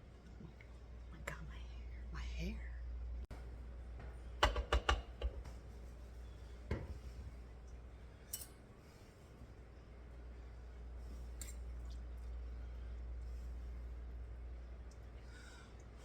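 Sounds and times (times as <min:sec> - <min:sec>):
utensils clinking against dishes: 0:08.3 - 0:08.6.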